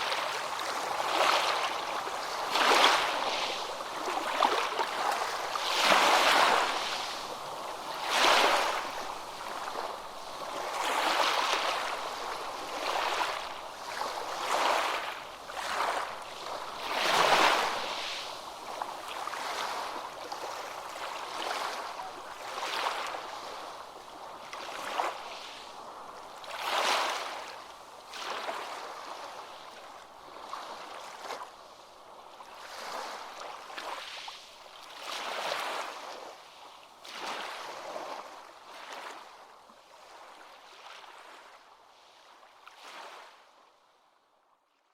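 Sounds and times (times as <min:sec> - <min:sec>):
ocean waves washing in: 0:00.0 - 0:28.9.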